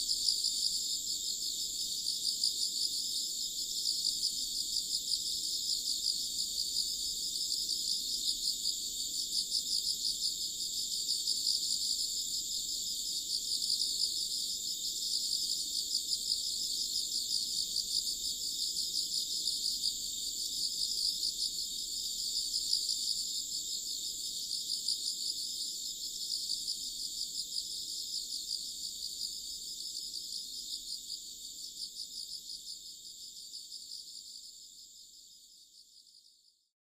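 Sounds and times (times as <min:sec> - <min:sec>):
insects chirping: 0:00.0 - 0:36.5.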